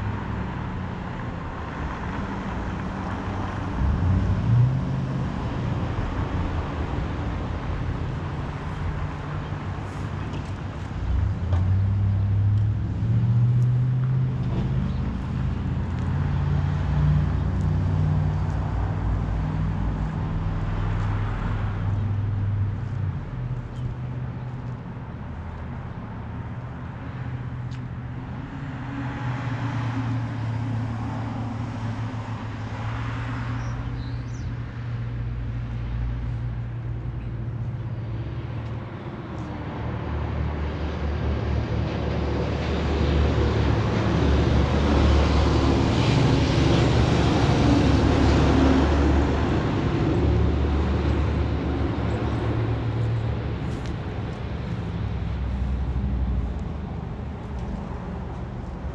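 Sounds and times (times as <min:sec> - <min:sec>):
road traffic noise: 0:00.0 - 0:58.9.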